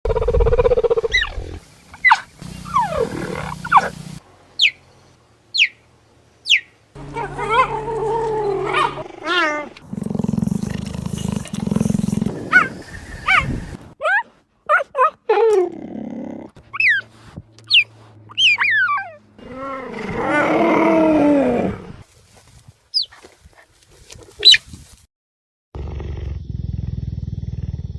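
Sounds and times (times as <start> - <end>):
wavering big cat calls: 6.5 - 9.8.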